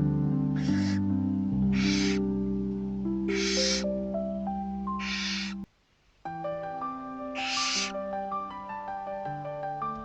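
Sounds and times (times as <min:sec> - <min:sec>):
soft background music: 0:00.0 - 0:10.0
barn owl hissing calls: 0:00.6 - 0:01.1, 0:01.7 - 0:02.3, 0:03.3 - 0:04.0, 0:04.9 - 0:05.7, 0:07.3 - 0:08.1.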